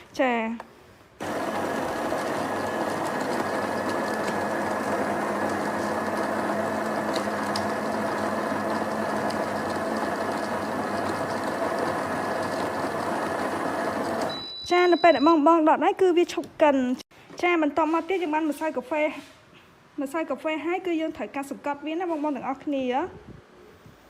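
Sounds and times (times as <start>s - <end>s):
coffee grinder grinding beans: 1.2s - 14.3s.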